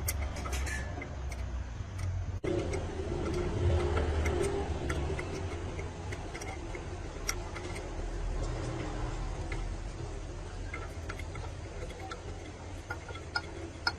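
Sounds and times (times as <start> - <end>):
light metallic ticks: 0.0 - 13.9.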